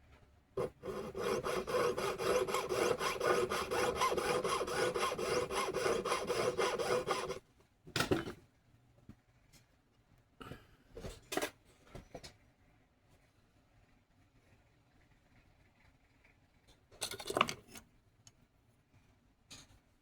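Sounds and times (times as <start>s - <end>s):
hand tool rasping on metal: 0.6s - 7.4s.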